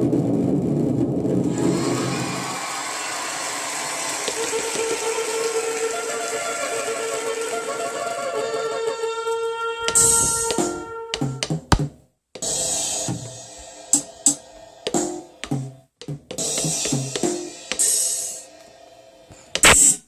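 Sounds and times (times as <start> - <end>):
electronic drum strikes: 9.9 - 18.4
electronic cymbal crash: 12.4 - 15.4, 16.4 - 19.0.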